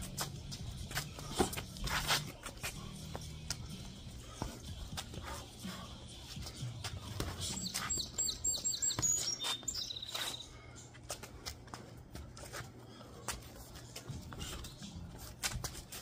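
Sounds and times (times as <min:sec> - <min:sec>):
songbird chirping and trilling: 0:07.4 - 0:10.6.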